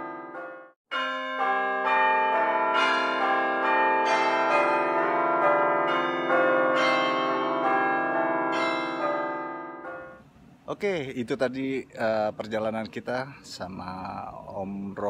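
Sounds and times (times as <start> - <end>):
bell chime melody: 0.0 - 10.2.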